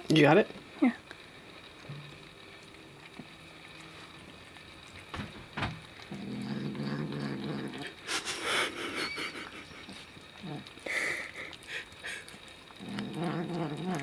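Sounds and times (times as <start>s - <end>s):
kitten growling: 6.0s - 14.0s.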